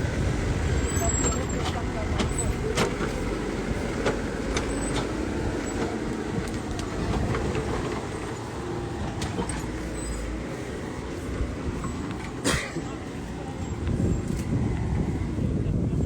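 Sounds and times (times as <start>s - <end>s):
tractor engine running under load: 0.0s - 16.0s
clanks and knocks: 0.8s - 8.5s.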